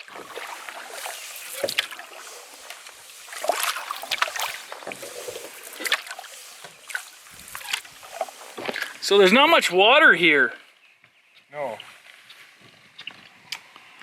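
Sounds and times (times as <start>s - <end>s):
paddles splashing in water: 0.0s - 9.6s.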